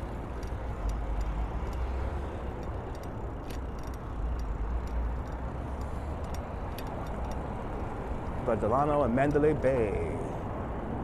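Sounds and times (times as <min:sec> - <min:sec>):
faint ticks: 0:00.0 - 0:07.9.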